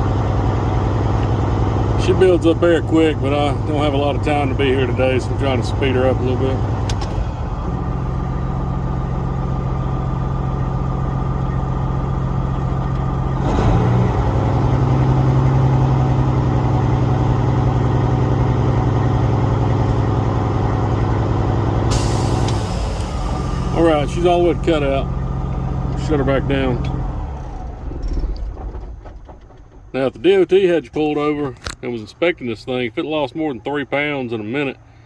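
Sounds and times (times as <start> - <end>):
diesel engine idling: 0.0 - 35.0
air system hissing: 21.9 - 26.5.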